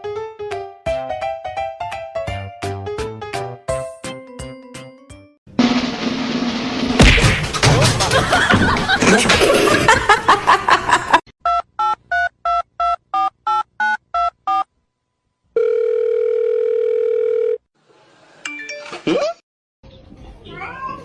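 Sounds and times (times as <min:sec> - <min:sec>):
steady phone tone: 0:15.6 - 0:17.6.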